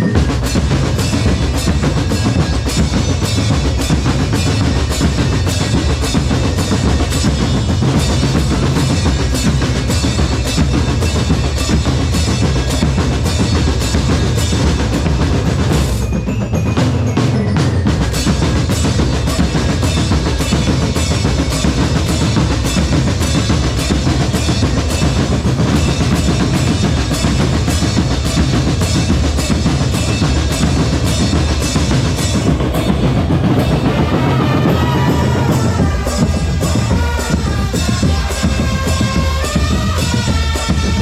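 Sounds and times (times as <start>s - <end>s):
bass drums and snares: 0.0s - 41.0s.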